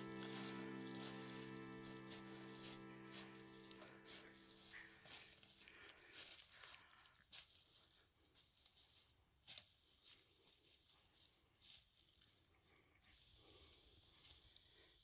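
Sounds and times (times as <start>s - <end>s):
footsteps crunching dry leaves: 0.0s - 12.1s.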